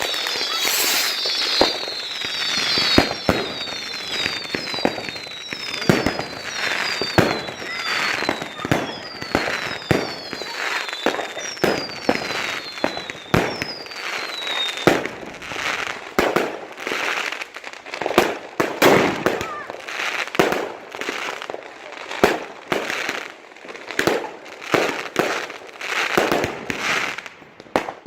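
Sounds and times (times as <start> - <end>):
firework whistles falling in pitch: 0.0 - 16.5, 18.8 - 19.8
fireworks bangs and crackling: 0.0 - 28.0.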